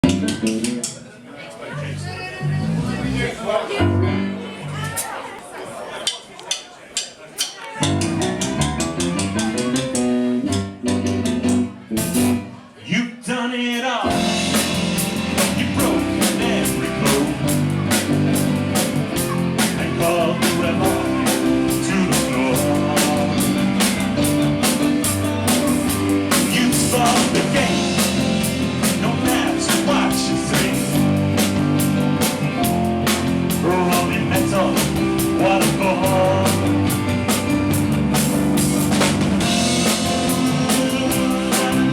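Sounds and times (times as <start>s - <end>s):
bass guitar: 0.0s - 1.0s, 1.8s - 5.0s, 7.8s - 12.6s, 14.1s - 41.9s
drum kit beat: 0.0s - 1.0s, 6.2s - 12.5s, 14.1s - 41.9s
electric guitar: 14.1s - 41.9s.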